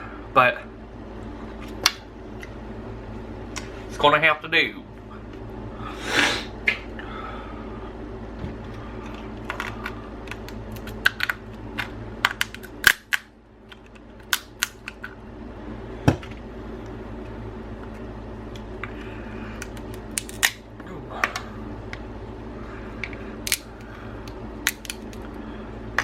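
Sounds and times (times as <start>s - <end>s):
steady background hum: 0.0s - 26.0s
crab shell cracking: 12.3s - 15.0s, 19.6s - 20.6s, 23.1s - 25.3s.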